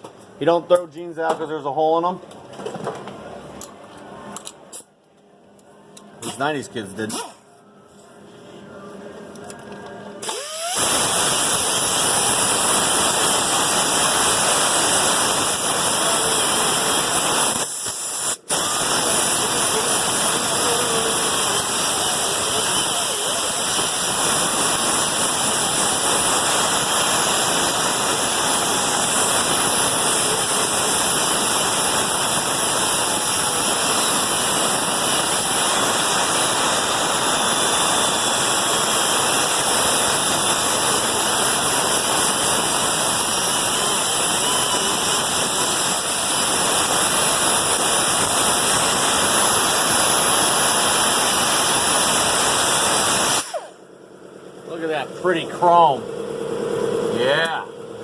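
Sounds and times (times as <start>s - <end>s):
power grinder on sheet metal: 10.2s - 53.7s.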